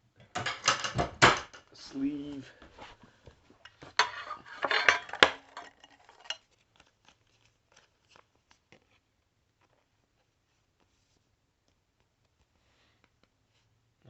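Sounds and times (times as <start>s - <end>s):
plastic sleeve rustling and crinkling: 6.4s - 11.2s.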